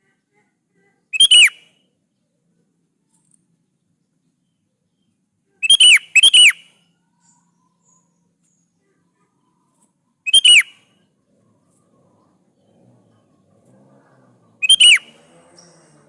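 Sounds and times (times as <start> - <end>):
bird calling whistled notes: 1.1 - 1.7, 5.6 - 8.1, 10.2 - 11.0, 14.6 - 15.9.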